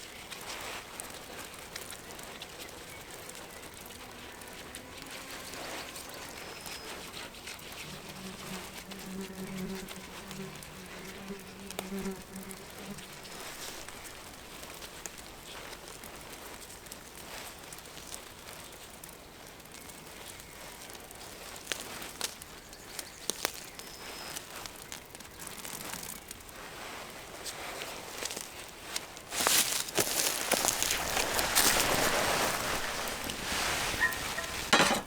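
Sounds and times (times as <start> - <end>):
small clicks and cracks: 0.0 - 26.6, 27.4 - 33.4
flying insect buzzing: 3.9 - 14.6, 29.9 - 34.7.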